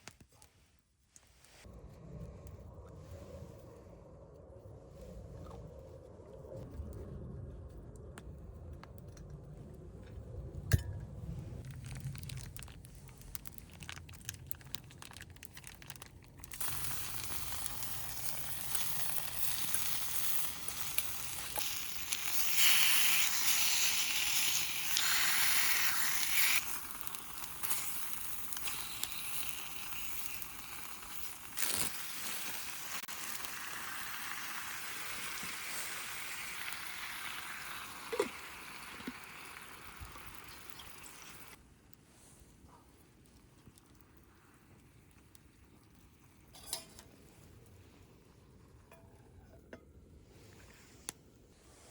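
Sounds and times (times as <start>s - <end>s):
noodles sizzling on a griddle: 16.5s - 41.6s.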